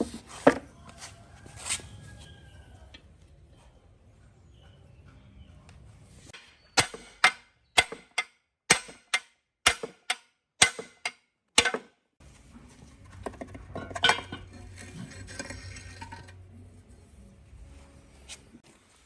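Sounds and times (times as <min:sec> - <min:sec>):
metal-on-metal strikes: 0:06.8 - 0:11.9.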